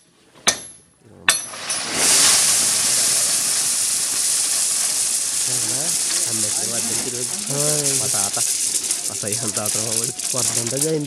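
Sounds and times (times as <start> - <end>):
loud steady hiss: 1.4 - 11.0.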